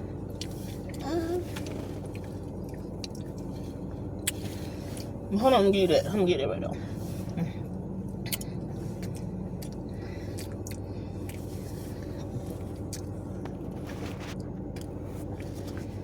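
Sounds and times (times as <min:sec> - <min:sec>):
steady low hum: 0:00.0 - 0:16.0
person chewing and biting food: 0:08.1 - 0:15.6.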